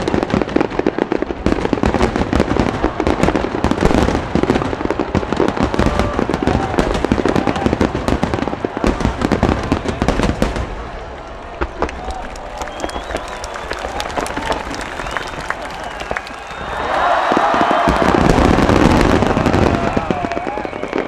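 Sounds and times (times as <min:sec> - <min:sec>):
fireworks bursting and crackling: 0:00.0 - 0:21.0.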